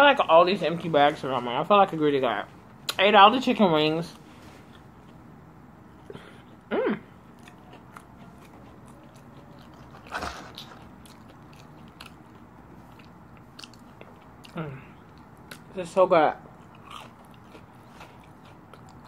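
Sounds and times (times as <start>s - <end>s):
person chewing with mouth closed: 5.9s - 15.7s, 16.6s - 19.0s
person humming: 6.7s - 7.1s.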